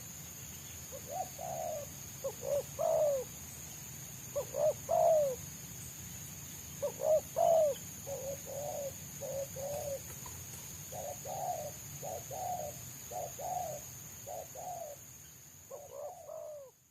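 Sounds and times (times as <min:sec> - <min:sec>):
doves cooing: 0:01.0 - 0:03.3, 0:04.3 - 0:05.4, 0:06.8 - 0:15.0, 0:15.7 - 0:16.8.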